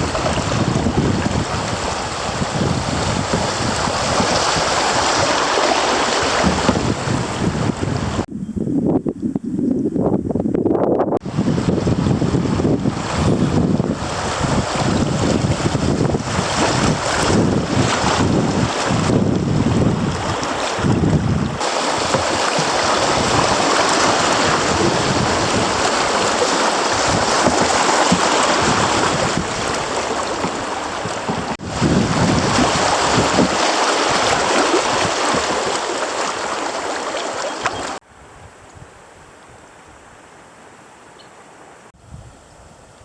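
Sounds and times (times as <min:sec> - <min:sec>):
creek water rushing: 0:00.0 - 0:08.3, 0:11.2 - 0:38.0.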